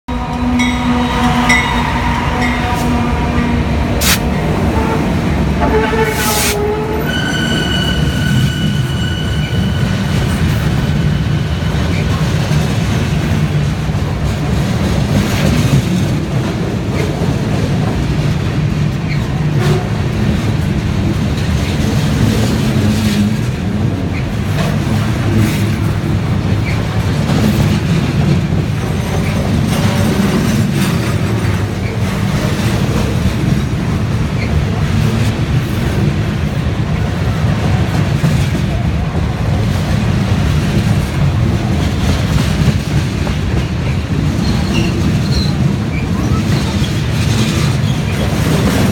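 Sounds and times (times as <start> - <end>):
freight train rumbling: 0.0 - 48.9
high wheel squeal: 4.8 - 12.2.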